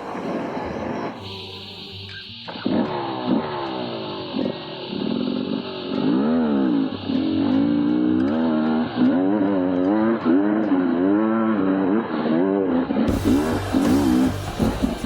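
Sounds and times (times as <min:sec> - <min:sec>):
two-stroke engine revving: 0:03.4 - 0:15.0.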